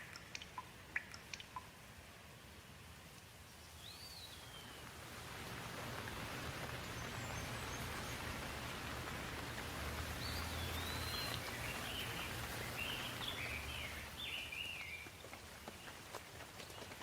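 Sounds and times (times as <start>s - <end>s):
steady rain falling: 0.0s - 17.0s
bird chirping: 3.6s - 4.9s, 10.2s - 15.2s.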